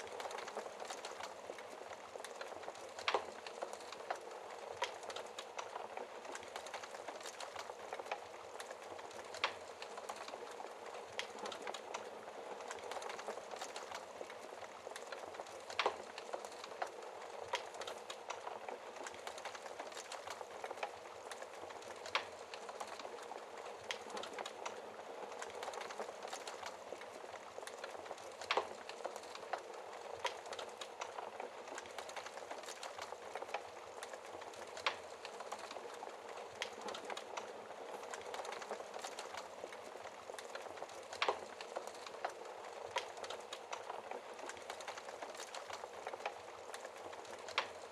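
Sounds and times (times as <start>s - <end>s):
fire hissing and crackling: 0.0s - 47.9s.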